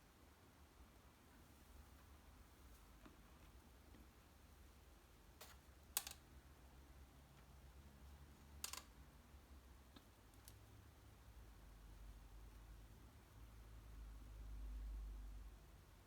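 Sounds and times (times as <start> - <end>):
laundry hanger clicking: 5.4 - 6.2, 8.6 - 8.9.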